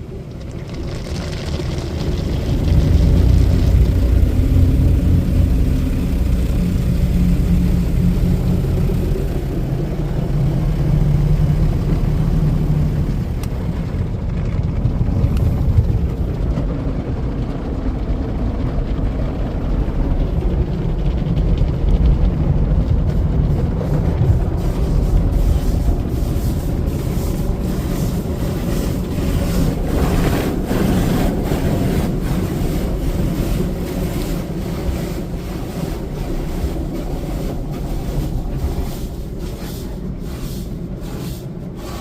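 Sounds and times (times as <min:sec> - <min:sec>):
car wash machinery rumbling: 0:00.0 - 0:42.0
humming drone: 0:02.4 - 0:13.4.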